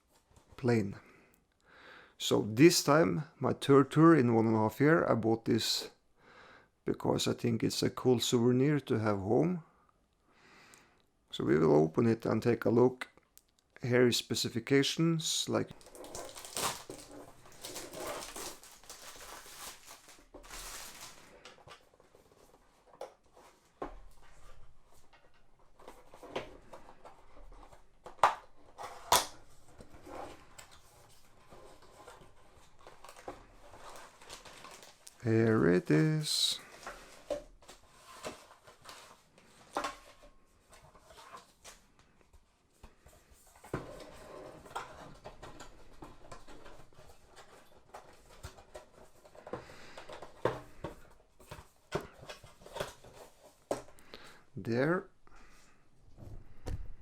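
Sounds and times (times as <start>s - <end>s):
cardboard and plastic rustling: 15.7s - 54.4s.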